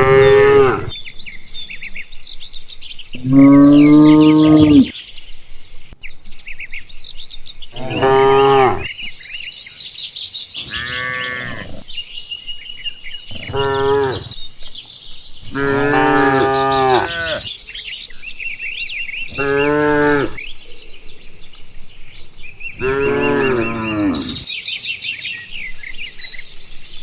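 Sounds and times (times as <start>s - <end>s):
cows mooing: 0.0s - 1.5s, 3.2s - 5.0s, 7.7s - 9.1s, 10.6s - 11.9s, 13.2s - 14.4s, 15.4s - 17.5s, 19.3s - 20.5s, 22.8s - 24.5s
birds chirping: 0.0s - 27.0s.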